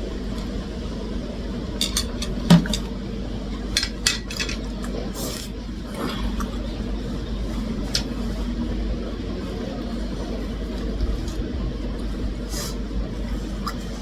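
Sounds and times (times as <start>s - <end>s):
steady low hum: 0.0s - 14.0s
cutlery clinking on dishes: 1.8s - 2.9s, 3.8s - 4.7s.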